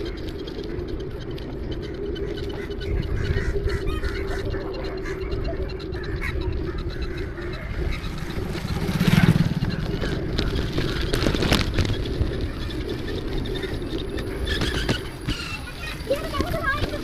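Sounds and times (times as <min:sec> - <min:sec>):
road noise rumble: 0:00.0 - 0:17.0
vehicle passing by: 0:06.6 - 0:11.9.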